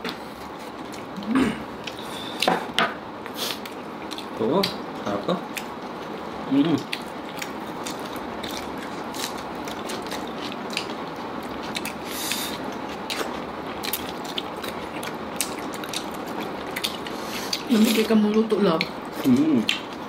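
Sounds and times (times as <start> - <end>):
chewing and gnawing: 3.5 - 4.8, 5.5 - 20.0.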